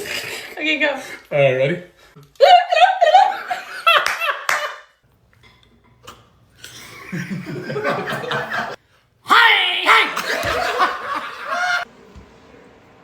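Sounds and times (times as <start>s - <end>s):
people laughing: 6.7s - 8.8s, 9.4s - 11.9s.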